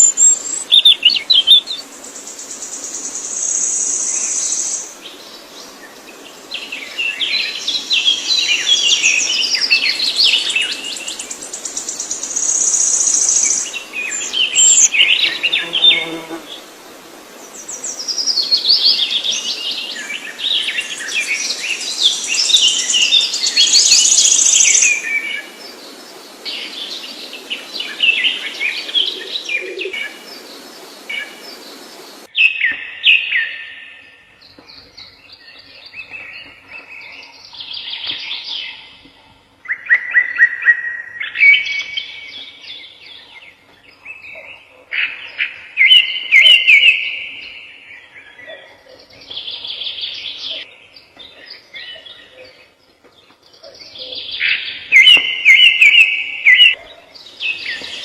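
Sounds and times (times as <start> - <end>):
songbirds chirping and singing: 0.0 - 16.7, 17.5 - 58.0
background hiss: 0.0 - 32.5, 54.2 - 58.0.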